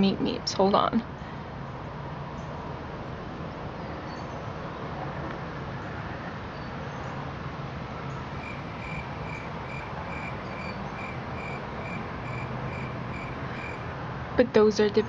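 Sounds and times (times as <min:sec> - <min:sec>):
low hum: 0:08.3 - 0:14.0.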